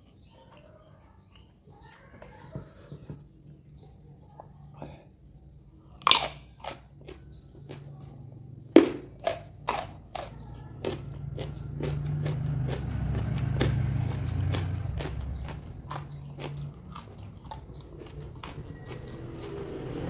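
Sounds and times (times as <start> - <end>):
crunchy biting and chewing: 6.0 - 20.0.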